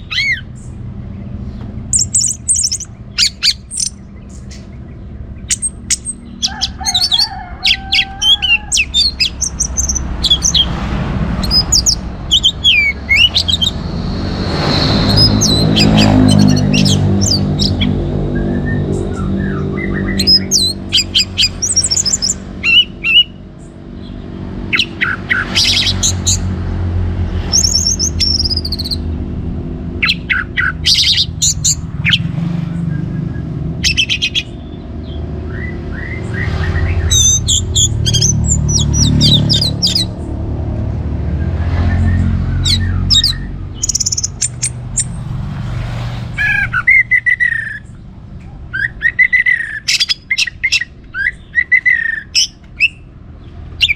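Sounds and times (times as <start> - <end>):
bird singing: 0.0 - 26.6, 27.2 - 40.5, 41.2 - 53.9
steady low rumble: 25.9 - 49.0.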